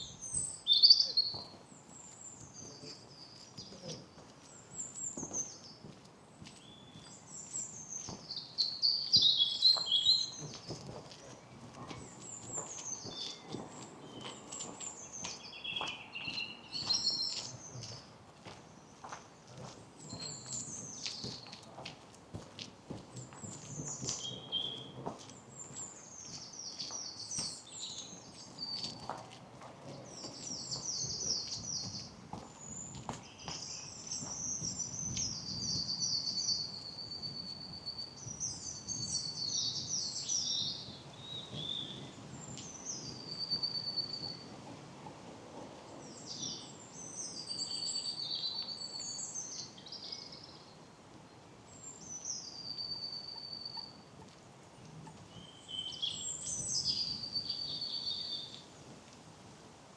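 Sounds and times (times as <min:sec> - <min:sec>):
songbirds singing trills: 0:00.0 - 0:05.9, 0:06.5 - 0:18.1, 0:20.0 - 0:21.6, 0:23.1 - 0:29.2, 0:29.9 - 0:44.5, 0:46.0 - 0:50.9, 0:51.7 - 0:54.1, 0:54.8 - 0:58.7
soft footsteps on a path: 0:00.0 - 0:52.4, 0:53.7 - 0:59.9.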